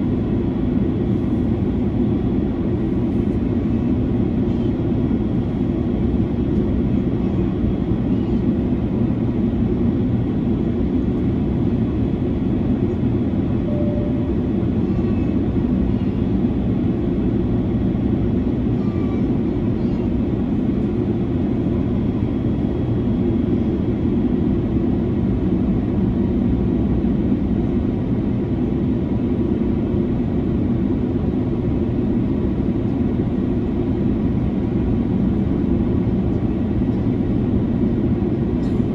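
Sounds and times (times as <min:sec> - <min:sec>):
airplane cabin engine noise: 0:00.0 - 0:38.9.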